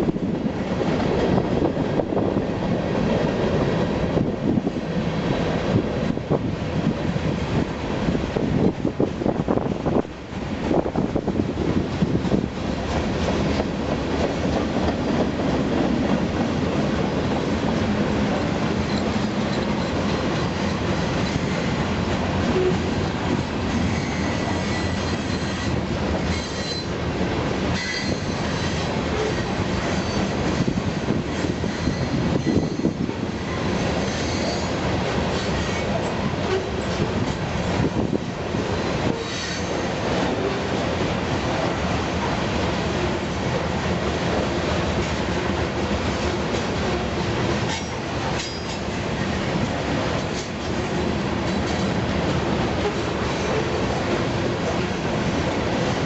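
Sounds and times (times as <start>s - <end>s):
train wheels clacking on rails: 10.6s - 56.0s
high wheel squeals: 23.8s - 26.9s, 31.7s - 33.0s.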